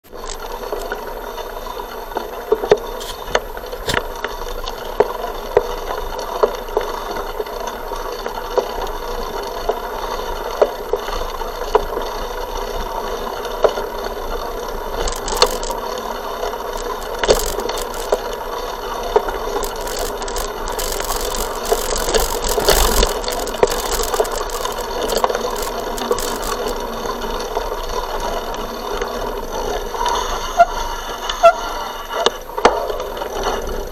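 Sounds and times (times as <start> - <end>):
bicycle rolling rumble: 14.7 - 28.2
bike frame knocking and rattling: 15.0 - 15.9, 16.8 - 18.3, 19.6 - 26.9.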